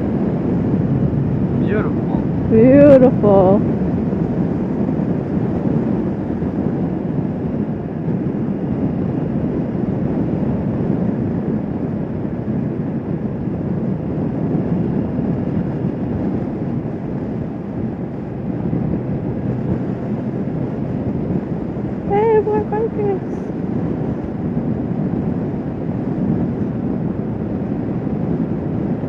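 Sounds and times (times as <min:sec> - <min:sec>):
motorcycle engine drone: 0:00.0 - 0:29.0
wind rushing over microphone: 0:00.0 - 0:29.0.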